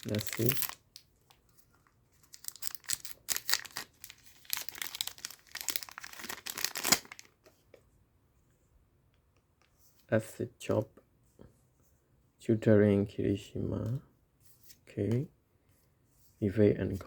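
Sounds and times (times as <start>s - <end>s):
foil pack tearing and crinkling: 0.0s - 0.8s, 2.3s - 7.3s.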